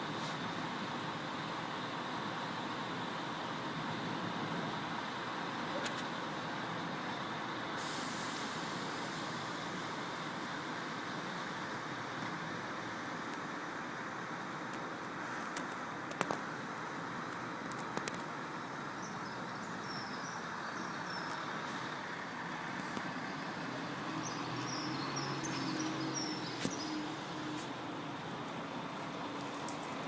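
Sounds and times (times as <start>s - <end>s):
diesel engine humming: 0.0s - 30.0s
birds chirping: 18.9s - 27.4s.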